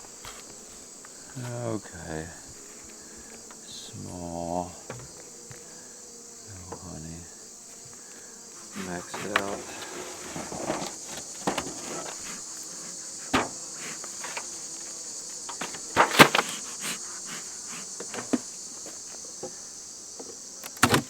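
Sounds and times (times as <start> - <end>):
crickets chirring: 0.0 - 21.0
sharp knocks and clatters: 9.1 - 12.4, 13.3 - 14.6, 15.5 - 16.6.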